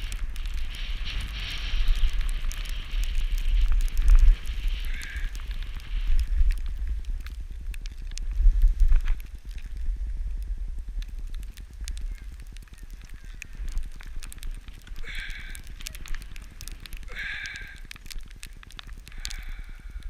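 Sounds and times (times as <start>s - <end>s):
skis sliding on snow: 0.0s - 7.0s
small clicks and crackles: 0.0s - 20.0s
wind buffeting microphone: 0.0s - 20.0s.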